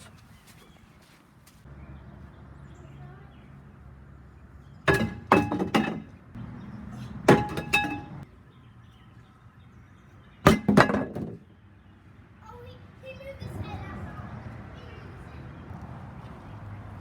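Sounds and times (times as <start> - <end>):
sharp knocks with faint ringing: 4.9 - 6.2, 7.3 - 8.2, 10.5 - 11.5.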